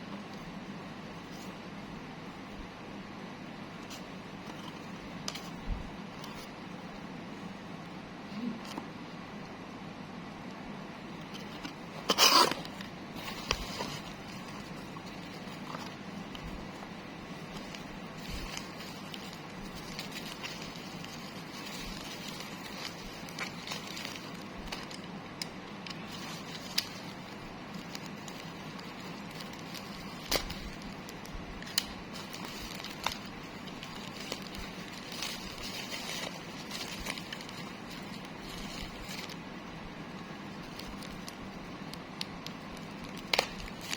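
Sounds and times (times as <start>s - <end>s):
steady background hum: 0.0s - 43.9s
plastic wrap crackling: 11.3s - 43.9s.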